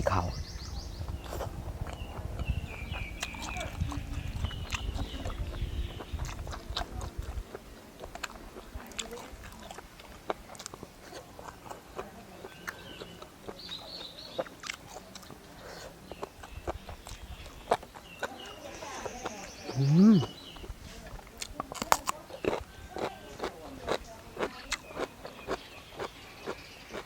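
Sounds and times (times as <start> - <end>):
low rumble: 0.0 - 8.2
person chewing crunchy food: 1.0 - 27.0.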